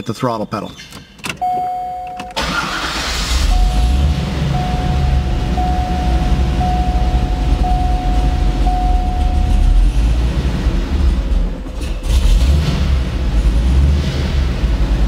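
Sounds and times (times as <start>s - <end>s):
dashboard warning chime: 1.4s - 10.1s
car engine idling: 1.4s - 12.4s.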